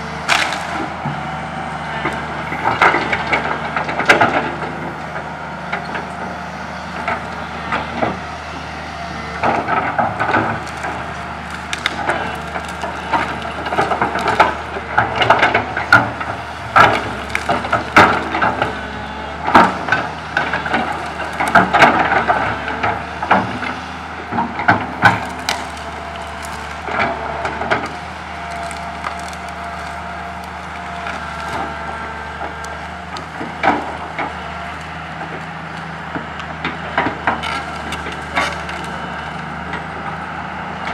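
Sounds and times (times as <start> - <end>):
excavator diesel engine running: 0.0 - 40.9
tree branches cracking and snapping: 0.2 - 4.6, 6.8 - 39.9.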